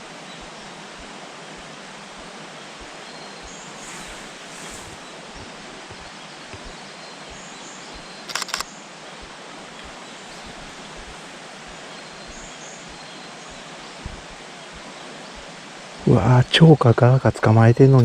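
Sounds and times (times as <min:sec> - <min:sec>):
forest ambience hiss: 0:00.0 - 0:18.0
camera shutter clicks: 0:08.3 - 0:08.7.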